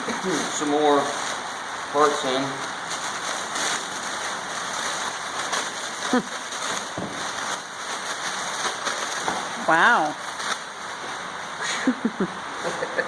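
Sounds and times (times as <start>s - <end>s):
rain on a roof: 0.0s - 13.0s.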